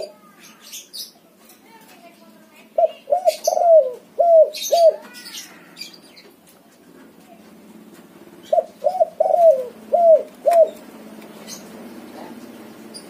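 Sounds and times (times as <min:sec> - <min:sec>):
dove cooing: 0:02.8 - 0:05.2, 0:08.4 - 0:13.0.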